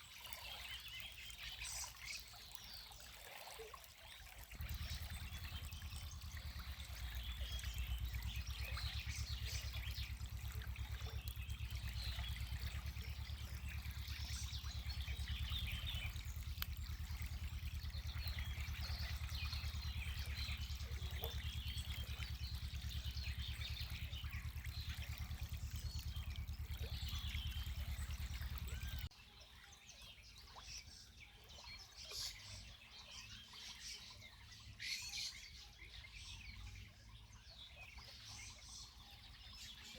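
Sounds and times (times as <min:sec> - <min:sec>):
spring water flowing: 0:00.0 - 0:29.1
small birds chirping: 0:00.0 - 0:39.9.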